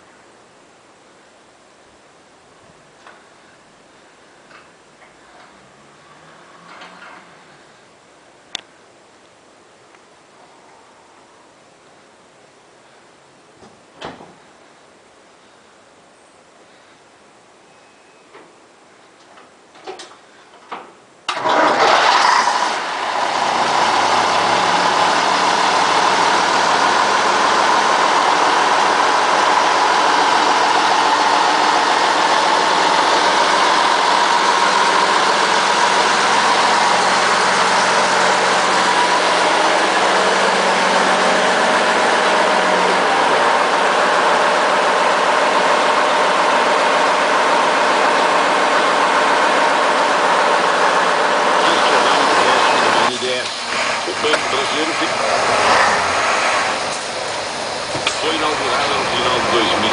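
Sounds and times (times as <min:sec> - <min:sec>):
truck diesel engine starting: 0:21.3 - 0:59.9.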